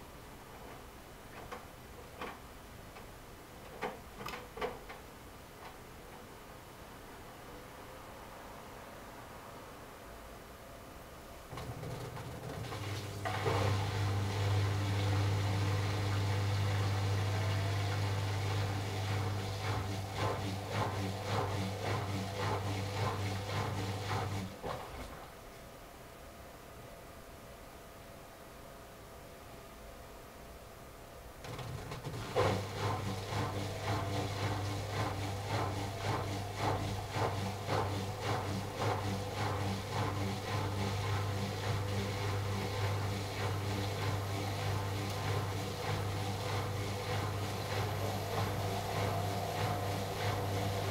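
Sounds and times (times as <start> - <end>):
washing machine electrical hum: 0.0 - 50.9
water rushing through machine: 11.5 - 25.2, 31.5 - 50.9.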